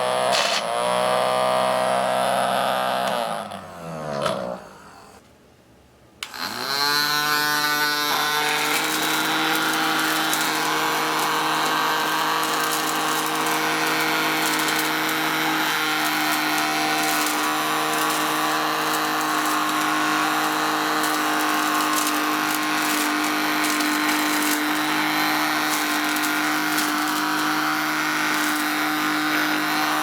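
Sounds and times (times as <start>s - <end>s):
small motor whining: 6.2s - 30.0s.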